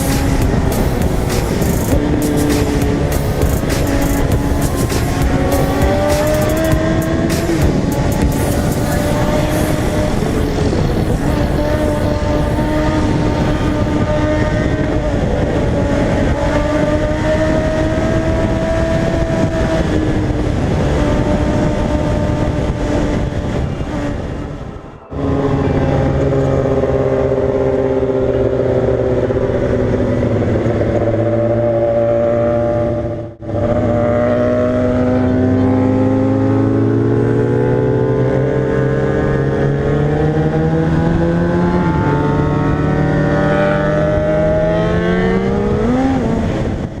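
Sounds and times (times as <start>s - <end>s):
motorcycle engine running: 0.0s - 24.4s
motorcycle engine revving: 0.0s - 47.0s.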